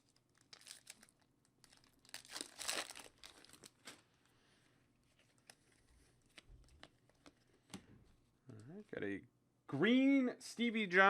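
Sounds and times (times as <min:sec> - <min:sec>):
wrapper crinkling and tearing: 0:00.0 - 0:04.2, 0:05.1 - 0:07.3.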